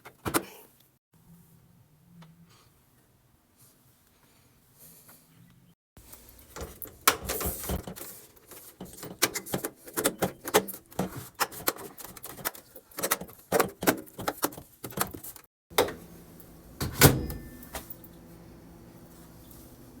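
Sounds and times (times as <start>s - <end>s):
plastic parts clicking and knocking: 6.5s - 15.9s.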